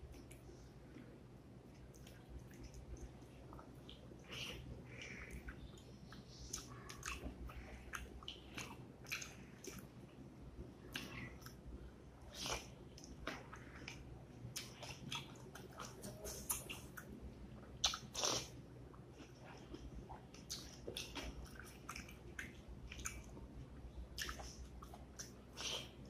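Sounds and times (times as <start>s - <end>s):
person chewing and smacking: 1.7s - 10.2s, 10.9s - 11.6s, 12.3s - 17.1s, 17.7s - 23.4s, 24.2s - 26.0s.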